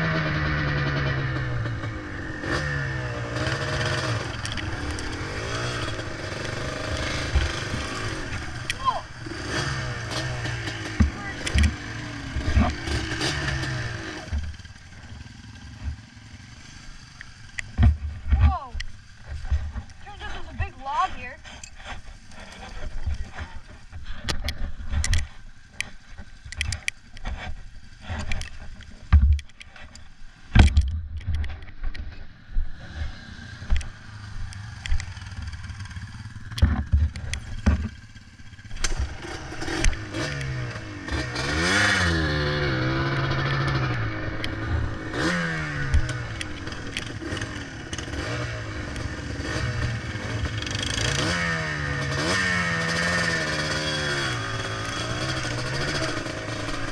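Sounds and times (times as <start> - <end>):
atv engine revving: 0.0 - 56.9
knocks and clatter: 21.4 - 29.9, 34.8 - 40.5.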